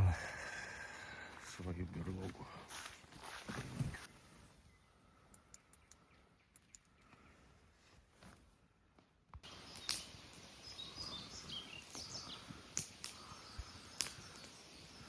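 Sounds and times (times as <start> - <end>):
small birds chirping: 3.6 - 8.1, 9.4 - 15.0
sharp clicks: 5.3 - 7.0
steady background hiss: 9.4 - 15.0.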